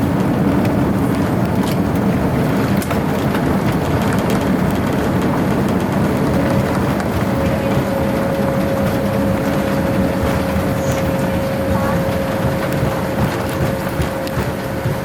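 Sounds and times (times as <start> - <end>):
aircraft engines and airflow rumble: 0.0 - 15.0
high whine: 6.1 - 15.0.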